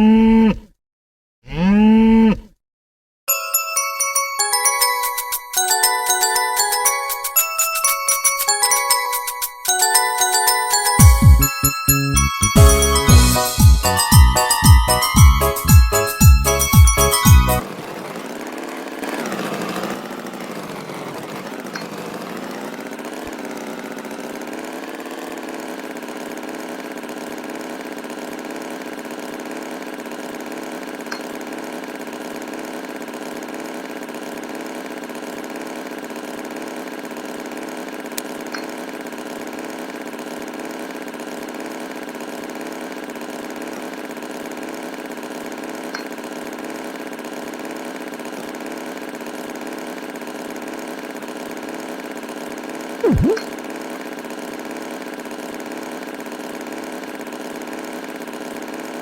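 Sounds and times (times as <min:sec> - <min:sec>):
tractor engine idling: 0:12.6 - 0:25.8.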